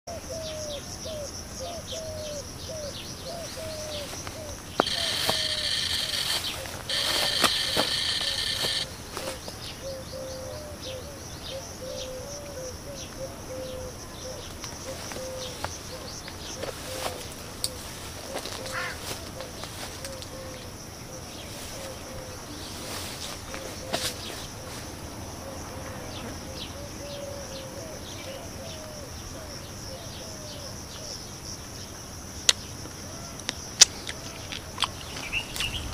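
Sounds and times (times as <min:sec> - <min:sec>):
high insect drone: 0:01.0 - 0:12.1, 0:14.8 - 0:35.9
bird chirps: 0:02.0 - 0:12.0
high falling bird chirps: 0:04.7 - 0:08.9
steady high-pitched buzz: 0:04.7 - 0:09.2
click: 0:04.8 - 0:08.9
bird hooked call: 0:04.8 - 0:09.4.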